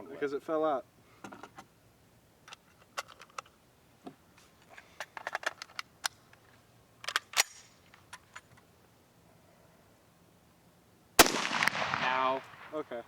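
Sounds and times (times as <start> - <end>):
rifle action clicks and clacks: 5.0 - 6.4, 7.0 - 8.5.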